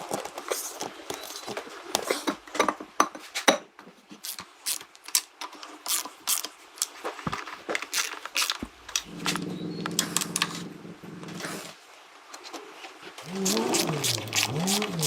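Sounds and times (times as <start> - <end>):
hand tools clicking and clinking: 13.2 - 15.0.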